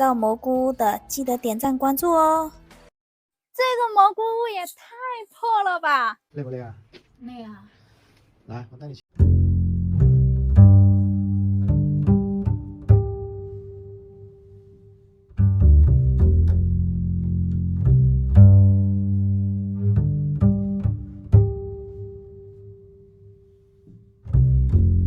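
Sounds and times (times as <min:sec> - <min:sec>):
low strings pizzicato tune: 0:09.2 - 0:25.0.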